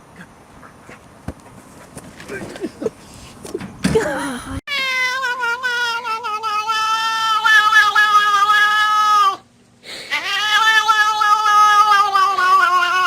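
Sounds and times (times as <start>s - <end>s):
cat yowling: 4.7s - 9.4s, 10.1s - 13.0s.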